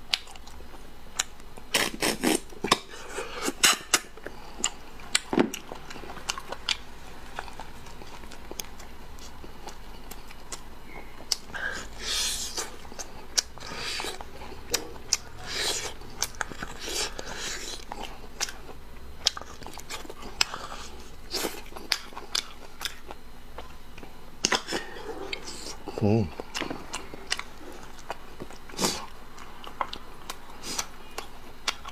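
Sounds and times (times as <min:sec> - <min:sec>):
wet chewing: 0:00.0 - 0:31.9
mouth clicks and smacks: 0:01.2 - 0:06.8.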